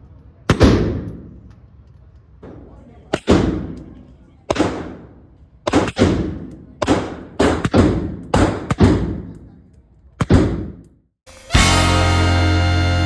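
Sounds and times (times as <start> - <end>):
gunshots with ringing tail: 4.5 - 9.3.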